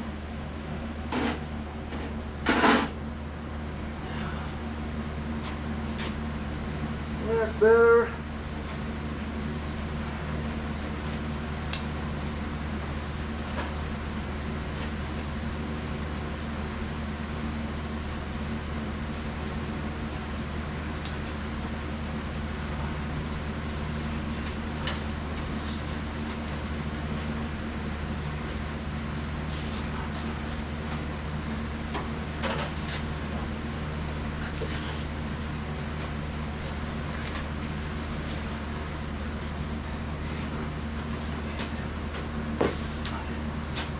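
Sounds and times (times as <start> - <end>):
machine hum: 0.0 - 43.9.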